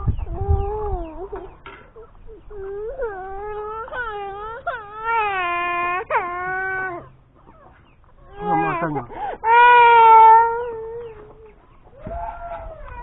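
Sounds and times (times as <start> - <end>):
baby crying: 2.5 - 7.1, 8.2 - 13.0.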